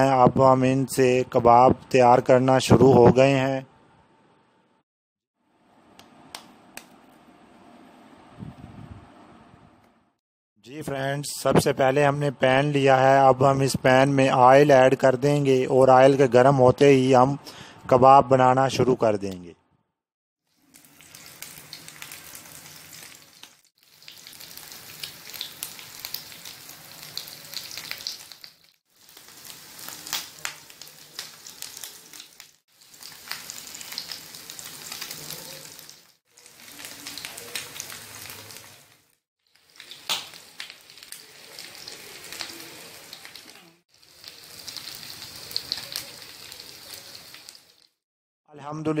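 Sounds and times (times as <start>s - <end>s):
meat sizzling in hot oil: 20.5s - 48.0s
oil popping and crackling: 20.5s - 48.0s.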